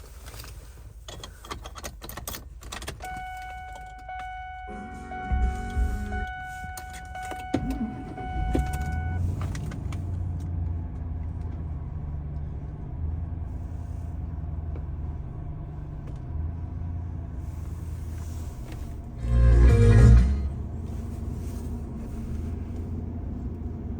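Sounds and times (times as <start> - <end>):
warning tone: 3.1 - 9.2, 19.2 - 20.6
car engine idling: 3.8 - 23.9.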